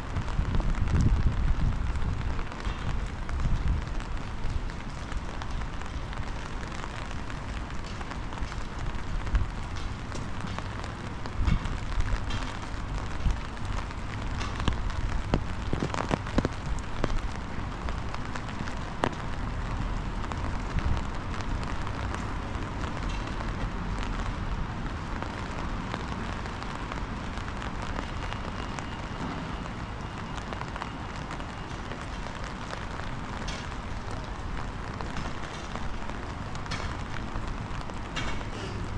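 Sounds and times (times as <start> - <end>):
wind rumbling on microphone: 0.0 - 28.6
rain hiss: 0.0 - 38.9
sharp drips and taps: 7.3 - 17.3.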